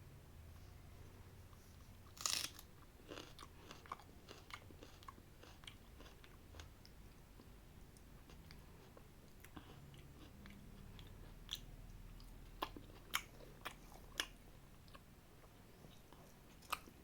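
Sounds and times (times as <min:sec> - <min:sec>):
person biting food: 0:02.2 - 0:02.6
soft chewing clicks: 0:02.7 - 0:17.0.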